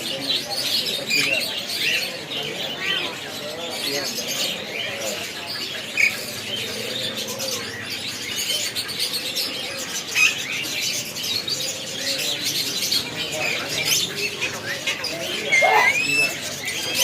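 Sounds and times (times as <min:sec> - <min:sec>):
birds twittering chorus: 0:00.0 - 0:17.0
sharp bird calls: 0:00.4 - 0:17.0.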